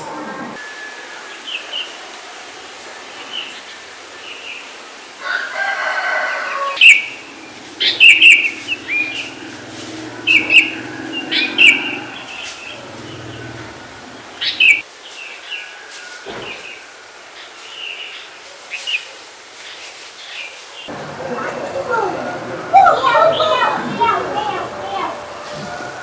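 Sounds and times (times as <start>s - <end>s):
long bird call: 6.5s - 14.8s
birds chirping: 6.5s - 14.9s, 20.2s - 26.0s.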